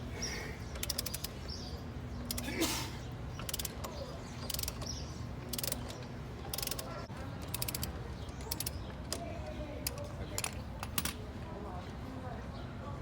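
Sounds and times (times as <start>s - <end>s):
ratchet wrench clicking: 0.7s - 1.4s, 2.3s - 2.5s, 3.4s - 11.2s.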